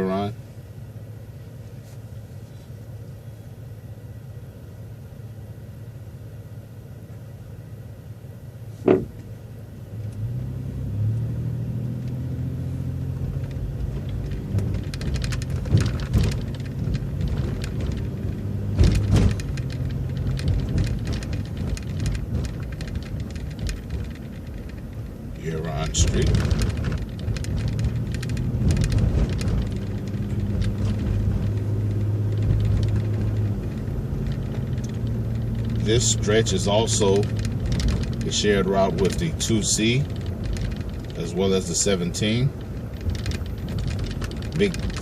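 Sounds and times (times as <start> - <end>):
bus engine accelerating: 0.0 - 45.0
bus rattles and bumps: 0.0 - 45.0
sharp knock: 8.8 - 9.2.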